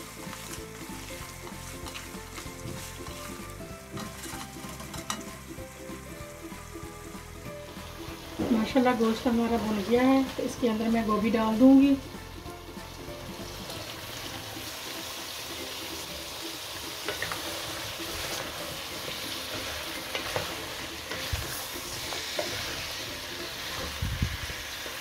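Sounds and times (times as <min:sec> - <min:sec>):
wooden spoon stirring and scraping: 0:00.0 - 0:05.3, 0:17.0 - 0:24.0
meat and vegetables sizzling in oil: 0:00.0 - 0:25.0.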